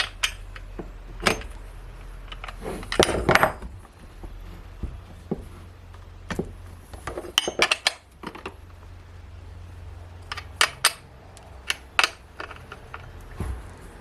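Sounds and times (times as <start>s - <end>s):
small metal parts clinking: 0.0s - 3.9s, 7.0s - 8.8s, 10.2s - 13.2s
low steady hum: 0.0s - 14.0s.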